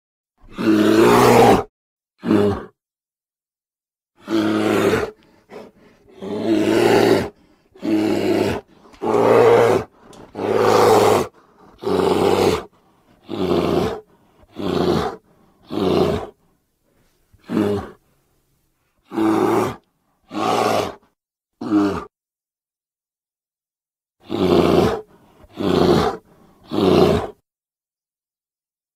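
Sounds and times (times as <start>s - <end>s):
bear roars: 0.4s - 2.8s, 4.2s - 16.4s, 17.4s - 18.0s, 19.1s - 21.0s, 21.6s - 22.1s, 24.2s - 27.4s.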